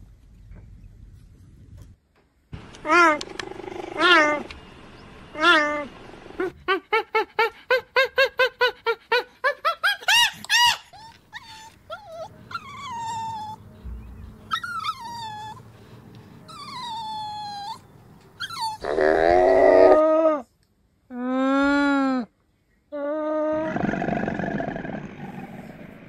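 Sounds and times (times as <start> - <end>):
alpaca humming call: 2.9 - 4.5
puppy whimpering: 9.8 - 15.7, 16.4 - 19.0.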